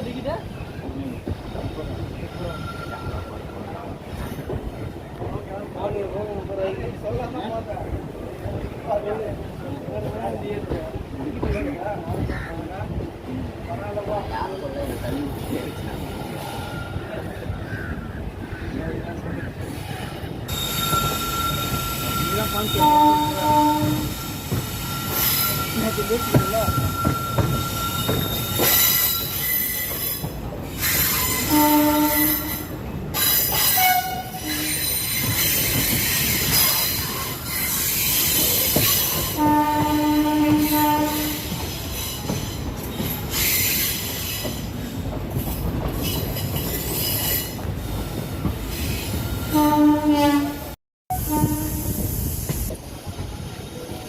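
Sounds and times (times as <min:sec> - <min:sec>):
moving train rumble: 0:00.0 - 0:54.0
train horn blasts: 0:20.6 - 0:24.3, 0:31.4 - 0:32.7, 0:33.8 - 0:34.9, 0:39.3 - 0:41.5, 0:49.4 - 0:52.0.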